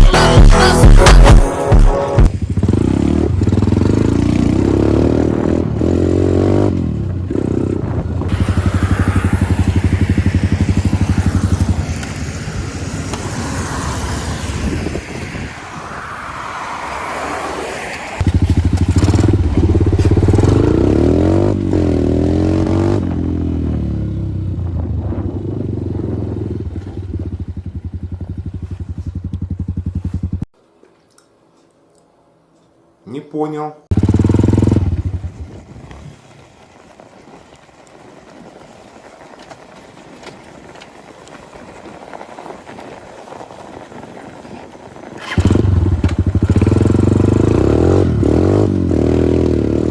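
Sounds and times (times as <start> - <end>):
motorbike engine revving: 1.2 - 15.5, 18.2 - 30.5, 33.9 - 36.0, 45.2 - 49.9
wind noise on microphone: 6.7 - 22.0, 22.6 - 30.4, 34.8 - 37.4.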